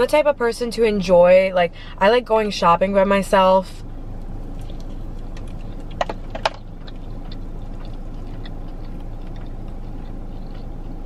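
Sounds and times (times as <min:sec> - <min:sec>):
car cabin hum: 0:00.0 - 0:11.0
crunchy chewing: 0:04.1 - 0:11.0.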